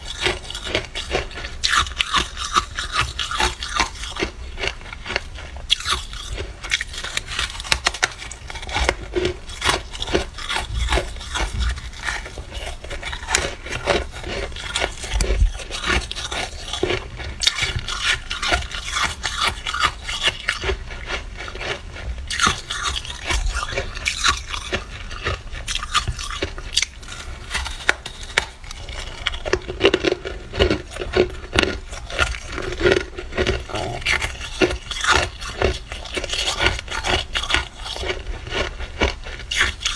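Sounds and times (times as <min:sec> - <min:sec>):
frost being scraped: 0:05.8 - 0:20.9.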